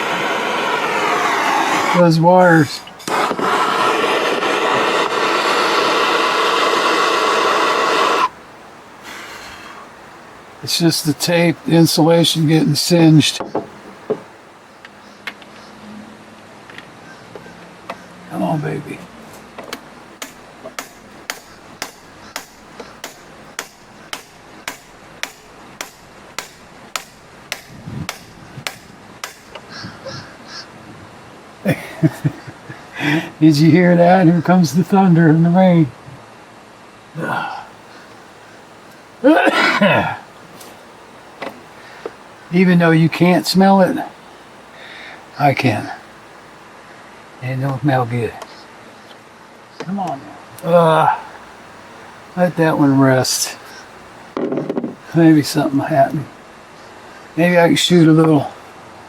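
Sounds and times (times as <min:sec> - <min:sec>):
heating torch hissing: 0:00.0 - 0:08.4
hammer striking metal bolts: 0:20.2 - 0:29.6.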